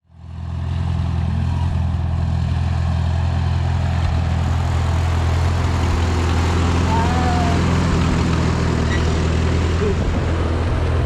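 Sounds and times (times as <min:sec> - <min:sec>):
vehicle engine idling: 0:00.1 - 0:11.0.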